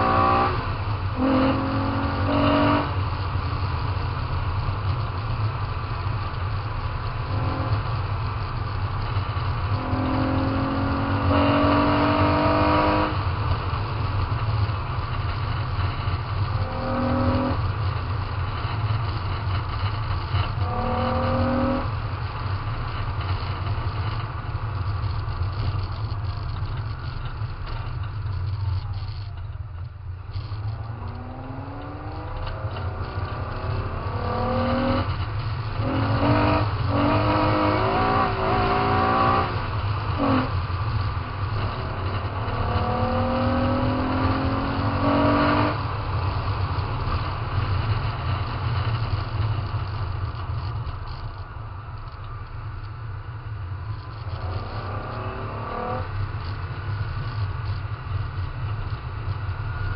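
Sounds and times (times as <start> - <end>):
car engine revving through gears: 0.0 - 29.3, 30.2 - 51.2, 53.9 - 59.9
low rumble: 14.1 - 45.0.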